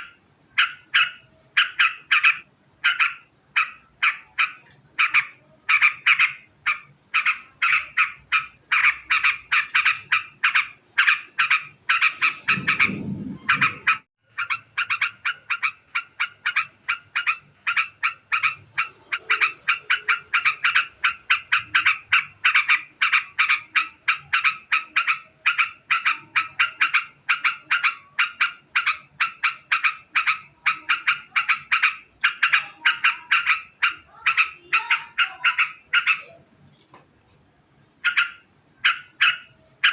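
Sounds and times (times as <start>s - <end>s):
bird chattering call: 0.0s - 36.4s, 38.0s - 39.9s
low rumble: 12.3s - 14.0s.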